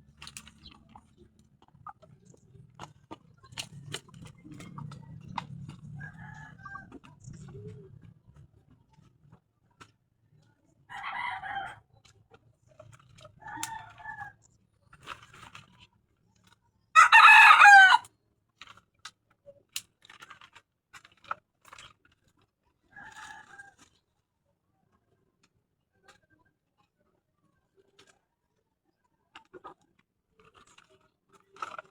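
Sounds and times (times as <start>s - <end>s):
chickens calling: 17.0s - 18.0s
rooster crowing: 17.0s - 18.0s.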